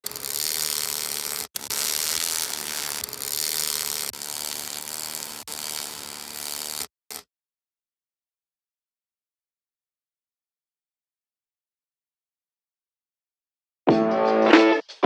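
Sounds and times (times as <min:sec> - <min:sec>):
belt grinder grinding: 0:00.0 - 0:07.2.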